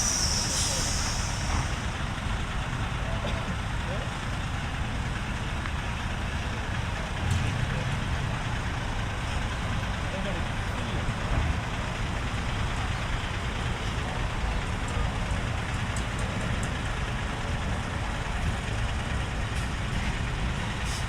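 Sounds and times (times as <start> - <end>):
even hiss: 0.0 - 1.8
diesel truck engine idling: 0.0 - 21.0.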